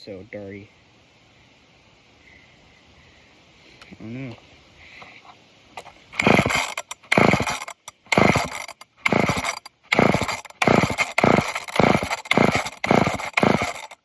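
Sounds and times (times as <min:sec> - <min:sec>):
chainsaw rope pull-starting: 0:05.8 - 0:14.0.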